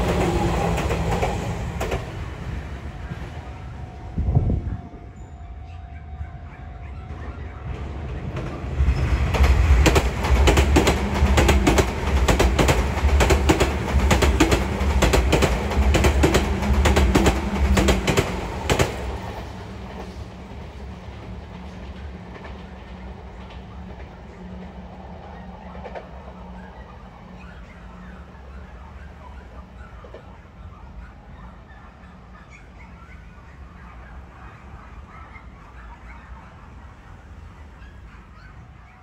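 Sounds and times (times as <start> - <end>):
electric train wheels clattering: 0.0 - 3.5, 7.2 - 30.8.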